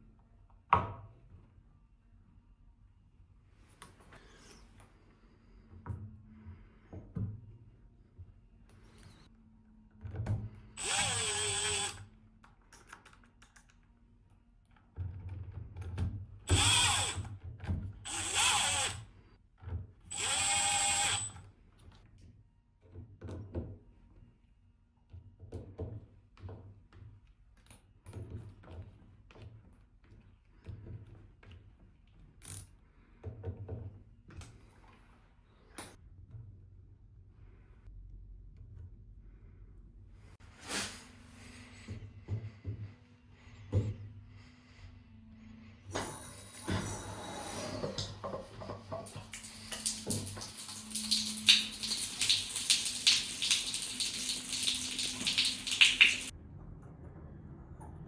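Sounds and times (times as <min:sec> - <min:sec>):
cordless drill whining: 0:10.8 - 0:12.0, 0:16.5 - 0:17.3, 0:18.1 - 0:19.0, 0:20.1 - 0:21.3.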